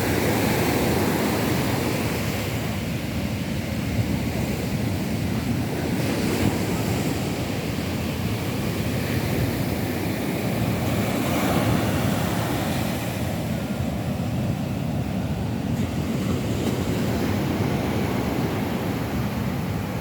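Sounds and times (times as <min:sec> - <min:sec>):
sea surf breaking on beach: 0:00.0 - 0:20.0.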